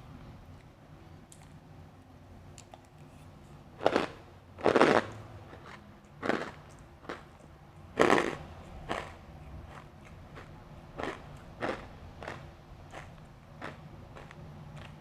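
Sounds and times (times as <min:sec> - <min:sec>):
ice crunching while chewed: 0:03.8 - 0:15.0.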